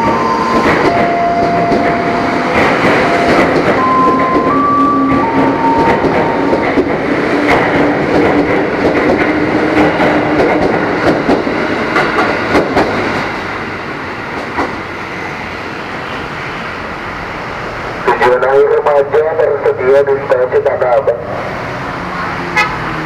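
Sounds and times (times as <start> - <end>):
train wheels clacking over rail joints: 0.0 - 13.6, 14.3 - 14.8.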